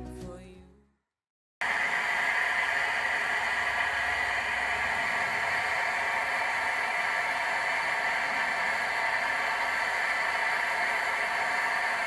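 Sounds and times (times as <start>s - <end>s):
camp stove burner hissing: 1.6s - 12.0s.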